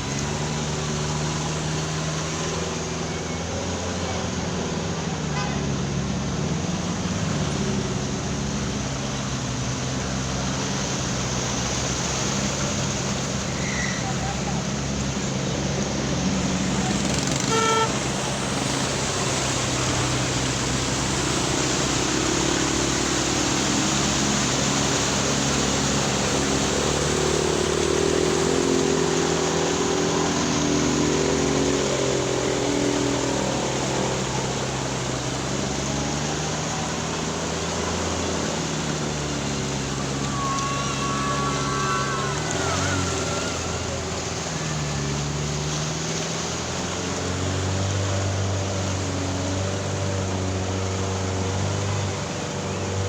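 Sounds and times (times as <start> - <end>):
vehicle engines running: 0.0 - 53.0
car horn toot: 5.3 - 5.7, 17.0 - 18.3, 40.0 - 44.0.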